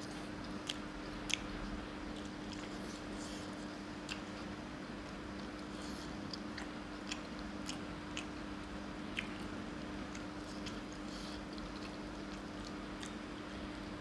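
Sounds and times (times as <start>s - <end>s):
person chewing food: 0.0s - 14.0s
steady low hum: 0.0s - 14.0s
wet mouth clicks and smacks: 0.5s - 2.8s, 9.1s - 13.2s.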